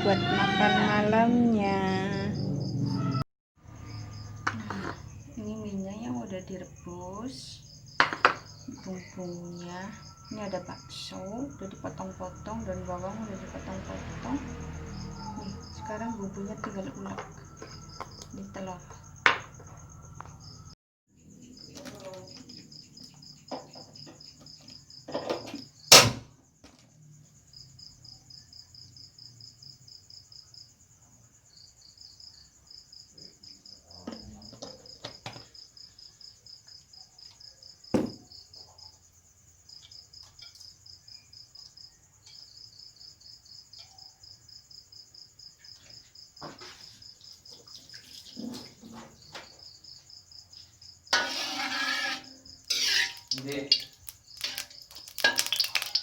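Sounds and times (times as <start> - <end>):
crickets chirping: 0.0 - 56.0
steady insect trill: 0.0 - 56.0
mortar and pestle grinding: 51.2 - 56.0.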